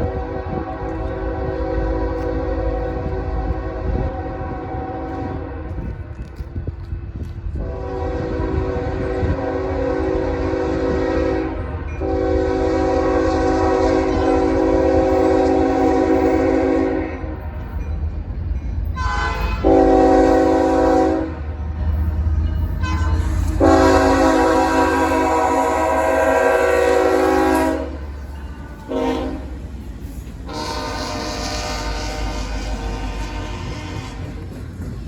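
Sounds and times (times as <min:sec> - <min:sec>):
locomotive air horn blasts: 0:00.0 - 0:05.8, 0:07.6 - 0:17.4, 0:19.0 - 0:21.4, 0:22.8 - 0:28.2, 0:28.8 - 0:29.7, 0:30.4 - 0:34.5
passing train rumble: 0:00.0 - 0:35.0.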